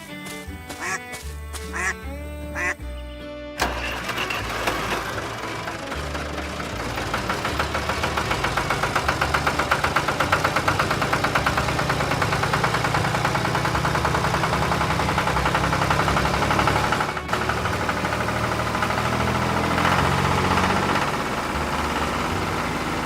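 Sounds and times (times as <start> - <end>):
engine chugging: 0.0 - 3.0, 3.6 - 23.0.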